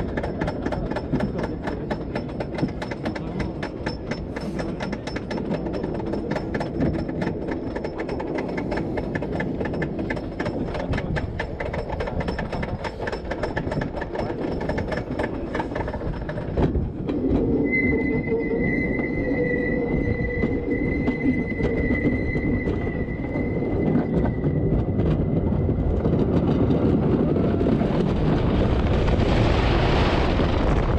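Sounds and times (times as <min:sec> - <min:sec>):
roller coaster rumbling and clattering: 0:00.0 - 0:30.9
high-pitched whine: 0:17.1 - 0:25.5.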